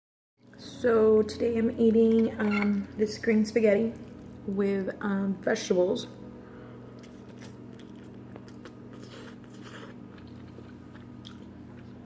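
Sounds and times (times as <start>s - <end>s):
steady low hum: 0.4s - 12.0s
person chewing food: 6.9s - 12.0s.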